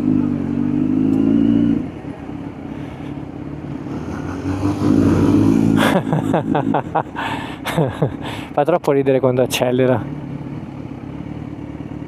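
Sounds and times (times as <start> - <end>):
motorcycle engine revving: 0.0 - 2.2, 3.5 - 7.2.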